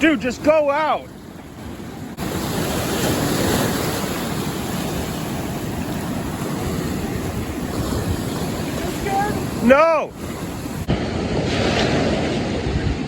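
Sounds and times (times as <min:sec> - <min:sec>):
surf washing over rocks: 0:00.0 - 0:13.0
wind buffeting microphone: 0:00.0 - 0:13.0.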